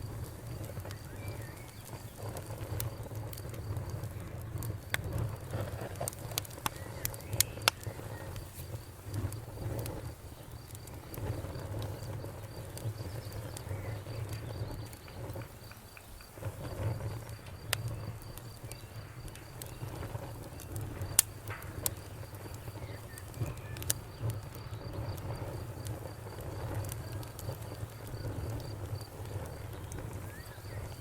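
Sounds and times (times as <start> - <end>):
low rumble of flames: 0.0 - 31.0
wood fire crackling and popping: 0.0 - 31.0.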